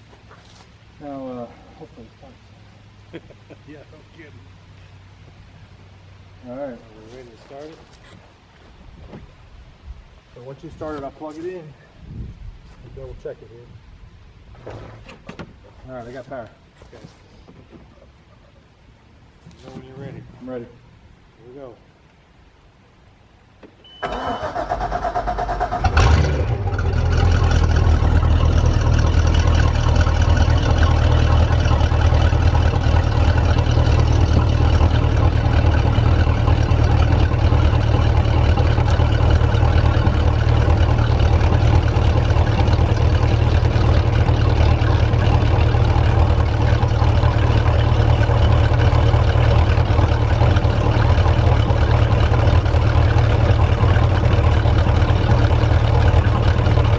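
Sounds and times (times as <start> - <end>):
starter cranking engine: 24.0 - 56.9
boat engine idling: 25.9 - 56.9.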